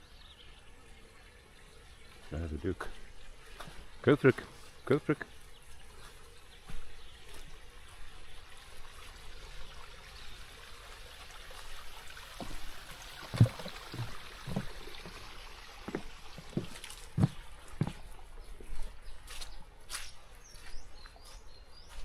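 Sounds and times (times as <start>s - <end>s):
water trickling: 0.0s - 21.9s
short dull thumps: 13.4s - 15.2s.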